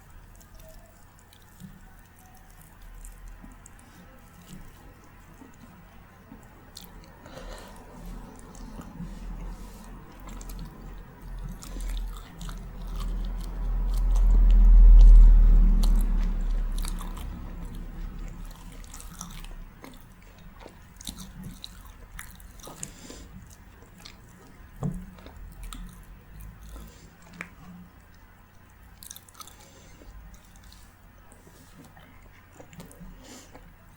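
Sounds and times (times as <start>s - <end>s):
chewing and biting food: 0.0s - 33.9s
deep low rumble: 7.5s - 19.7s.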